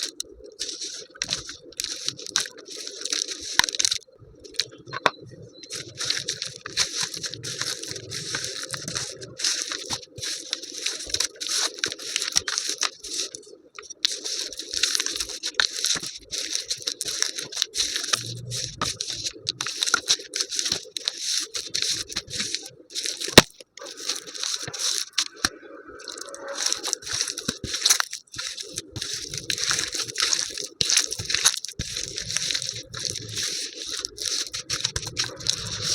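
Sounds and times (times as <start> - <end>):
brittle material crushed by hand: 0.0 - 5.1, 5.7 - 35.9.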